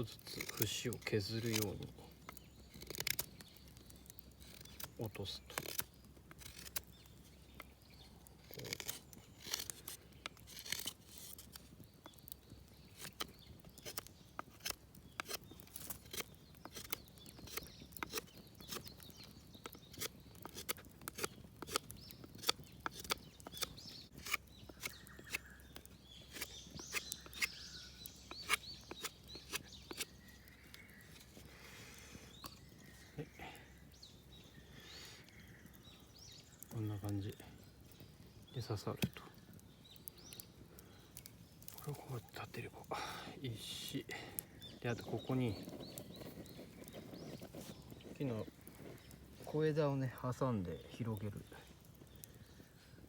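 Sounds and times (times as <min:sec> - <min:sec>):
knife whittling wood: 0:08.5 - 0:11.6, 0:19.9 - 0:25.4, 0:26.3 - 0:27.7, 0:28.3 - 0:30.1.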